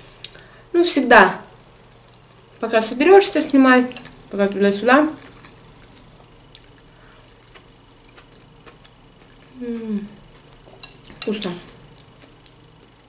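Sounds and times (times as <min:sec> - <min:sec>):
wet chewing sounds: 0:05.2 - 0:09.6, 0:10.2 - 0:13.0
person humming mmm: 0:09.5 - 0:10.3.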